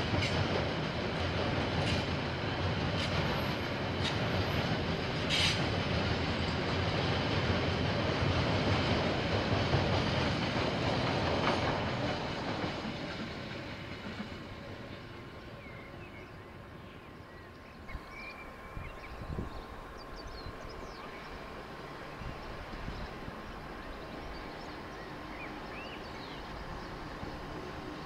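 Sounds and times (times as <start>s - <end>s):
train rumbling past: 0.0s - 28.0s.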